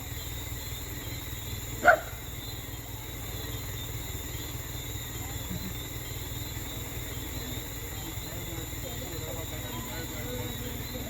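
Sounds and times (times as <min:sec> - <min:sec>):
insects chirping: 0:00.0 - 0:11.0
truck engine rumble: 0:00.0 - 0:11.0.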